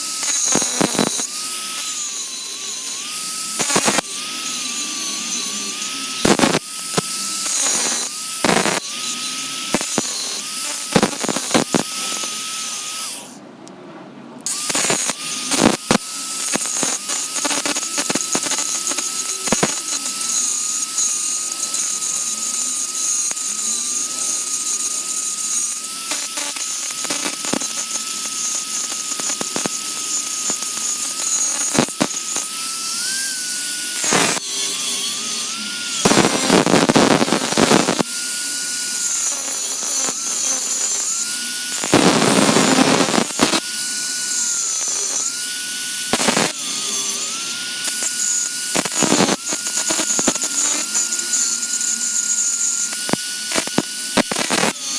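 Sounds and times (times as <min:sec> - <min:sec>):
grinding rasp on belt: 0:00.0 - 0:13.3, 0:14.5 - 0:54.9
belt grinder motor whine: 0:00.0 - 0:13.4, 0:14.4 - 0:54.9.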